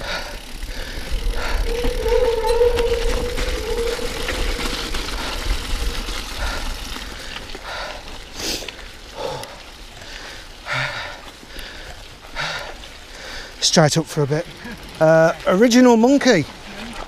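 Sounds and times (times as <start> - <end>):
bike tyres rumbling on wet trail: 0.0 - 17.0.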